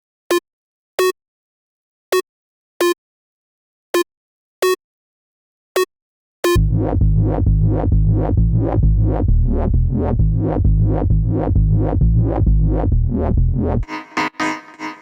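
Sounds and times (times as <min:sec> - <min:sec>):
uk garage electronic loop: 0:13.8 - 0:15.0.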